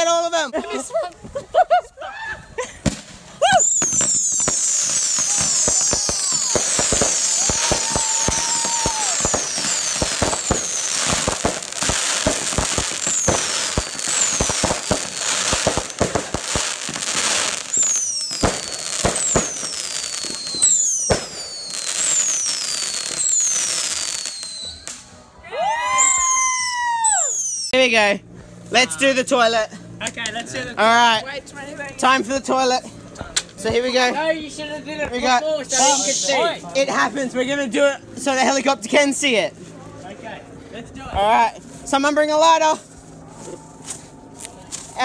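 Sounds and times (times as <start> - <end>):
fireworks cracking and popping: 2.8 - 25.2
fireworks whistling: 2.8 - 25.3, 26.0 - 27.8, 35.7 - 36.5.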